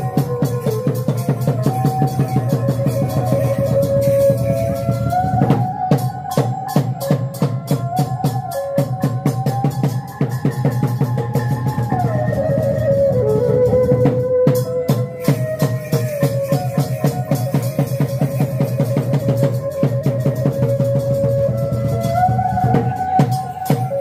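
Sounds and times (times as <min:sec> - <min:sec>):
sustained melody: 0:00.0 - 0:15.4
drums beating steady rhythm: 0:00.0 - 0:24.0.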